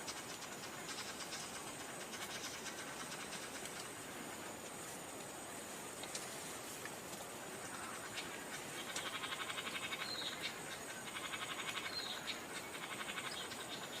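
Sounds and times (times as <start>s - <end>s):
rapid pulsing animal call: 7.6s - 14.0s.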